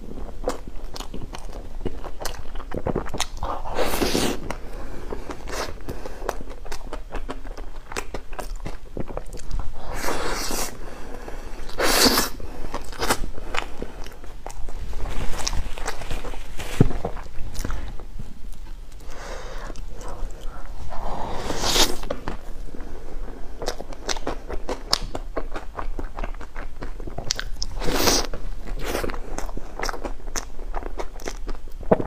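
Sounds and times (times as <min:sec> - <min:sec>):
wet chewing and lip smacks: 0:23.6 - 0:31.6.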